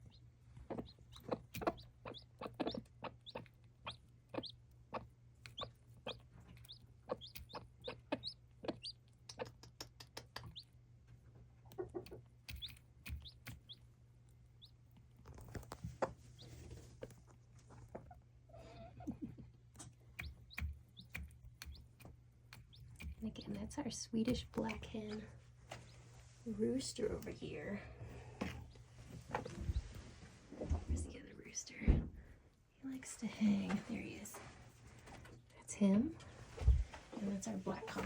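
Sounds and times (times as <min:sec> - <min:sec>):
chick peeping: 0:00.0 - 0:10.8, 0:11.7 - 0:13.8, 0:20.2 - 0:23.2, 0:28.4 - 0:30.0
hen clucking: 0:00.0 - 0:10.8, 0:11.6 - 0:13.8, 0:20.2 - 0:25.1
rustling: 0:25.2 - 0:27.0, 0:28.1 - 0:31.1.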